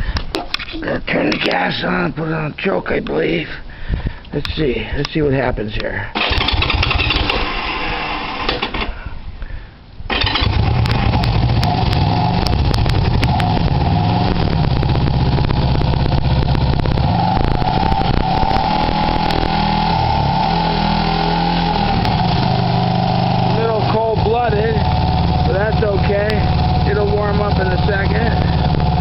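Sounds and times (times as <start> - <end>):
motorcycle engine starting and running: 6.2 - 9.0, 10.1 - 29.0.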